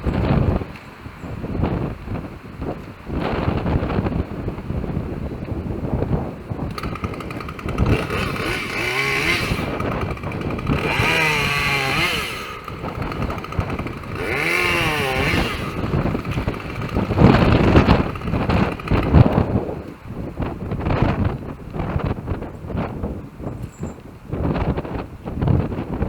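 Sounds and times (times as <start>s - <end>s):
wind buffeting microphone: 0.0s - 26.0s
chainsaw revving: 6.7s - 19.8s.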